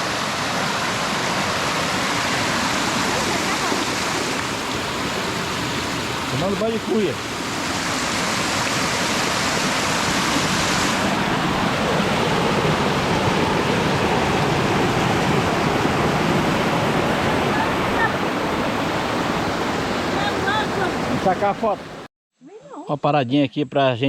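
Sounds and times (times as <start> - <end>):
stream water rushing: 0.0 - 22.1.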